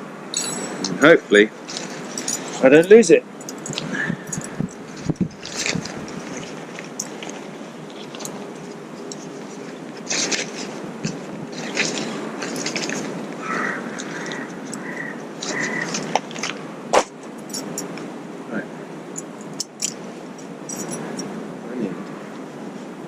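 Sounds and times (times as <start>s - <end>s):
rustling and scraping of gear: 1.6s - 16.6s
crunching on woodland floor: 5.0s - 16.6s.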